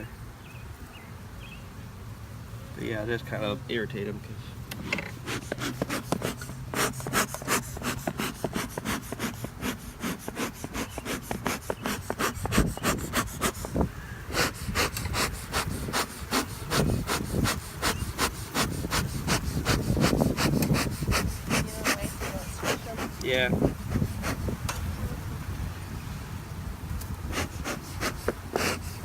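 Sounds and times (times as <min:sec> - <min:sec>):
rapid scraping on wooden beehive: 0:04.7 - 0:24.9, 0:27.1 - 0:29.0.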